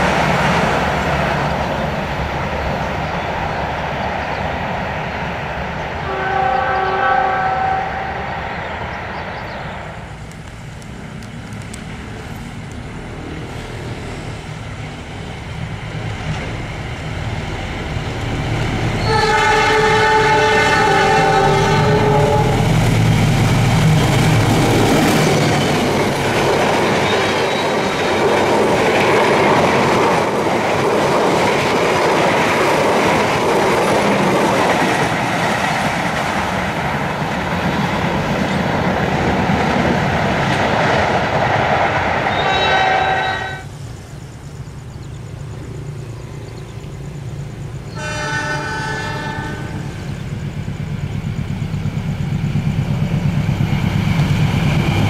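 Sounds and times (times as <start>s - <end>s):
train horn: 6.0s - 8.3s, 19.0s - 22.8s, 42.3s - 43.7s, 47.9s - 50.0s
train wheels clattering on rails: 9.3s - 42.6s.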